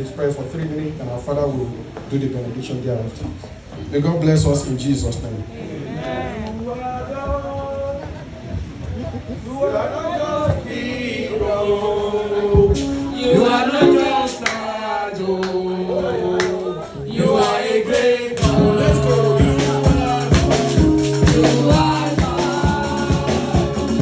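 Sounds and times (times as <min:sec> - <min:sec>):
congregation singing gospel: 0:05.1 - 0:24.0
lead singer: 0:10.3 - 0:24.0
steady drum beat: 0:17.2 - 0:24.0.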